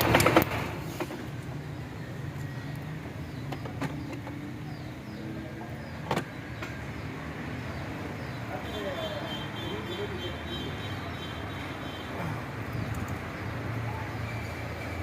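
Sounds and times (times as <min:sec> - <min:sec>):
sharp clicks: 0:12.8 - 0:13.3.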